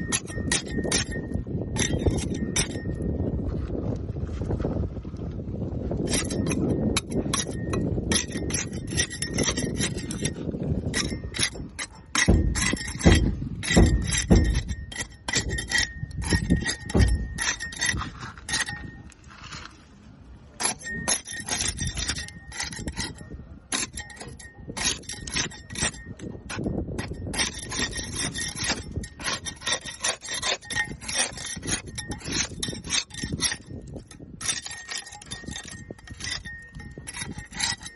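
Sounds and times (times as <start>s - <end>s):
barnacles scraped off boat hull: 0.0s - 3.0s, 6.0s - 20.0s, 20.6s - 37.9s
heavy knocks: 10.9s - 17.8s.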